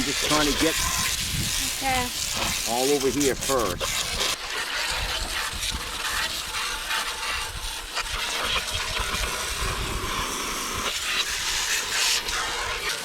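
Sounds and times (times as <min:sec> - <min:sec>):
hose spraying water: 0:00.0 - 0:13.0.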